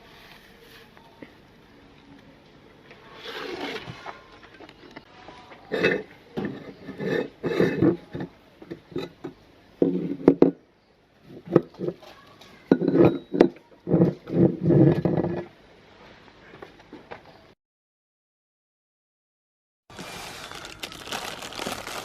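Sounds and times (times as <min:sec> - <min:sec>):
metal and dishware clinking: 0:12.7 - 0:13.6.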